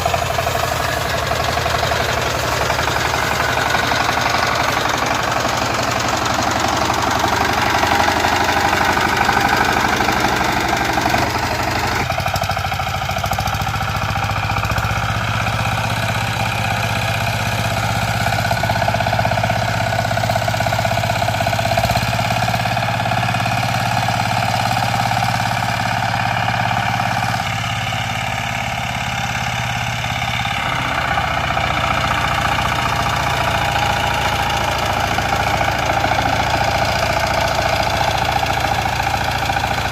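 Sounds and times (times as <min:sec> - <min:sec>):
power tiller engine running: 0:00.0 - 0:39.9.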